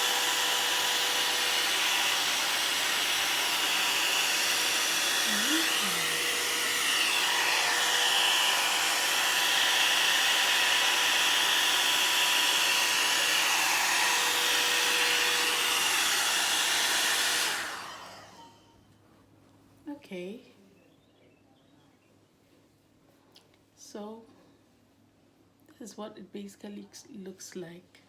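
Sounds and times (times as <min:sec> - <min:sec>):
hot-air brush dryer whirring: 0:00.0 - 0:18.6.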